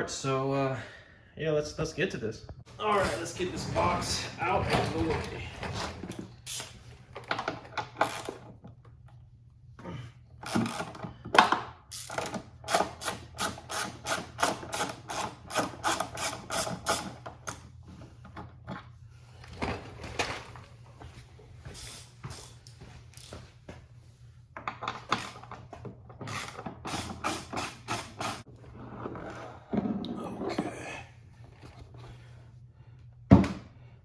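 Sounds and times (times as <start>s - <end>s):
knocks and scrapes: 2.9s - 6.3s
ratchet wrench clicking: 11.9s - 17.1s.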